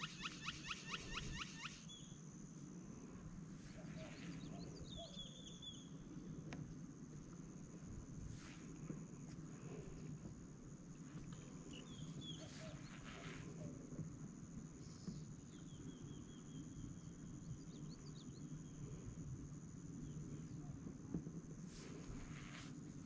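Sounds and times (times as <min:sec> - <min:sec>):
small birds chirping: 0:00.0 - 0:02.2, 0:03.7 - 0:06.3, 0:10.9 - 0:13.8, 0:14.8 - 0:19.0.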